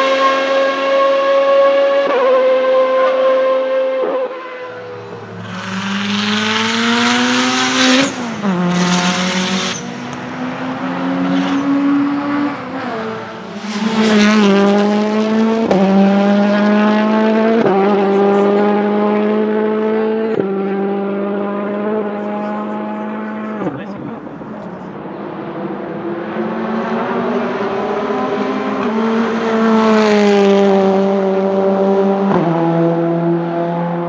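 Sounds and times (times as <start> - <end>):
car engine accelerating: 0.0 - 34.0
loud rushing noise: 5.1 - 10.6.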